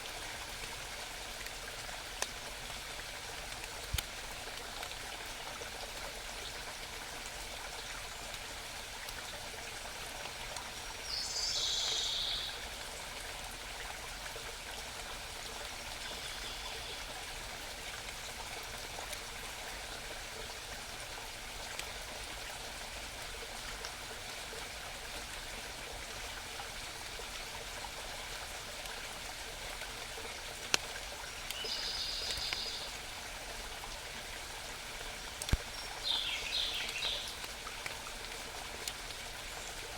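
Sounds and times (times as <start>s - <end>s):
brook burbling: 0.0s - 39.9s
songbird singing: 11.1s - 12.8s, 16.0s - 17.1s, 31.4s - 32.9s, 35.6s - 37.4s.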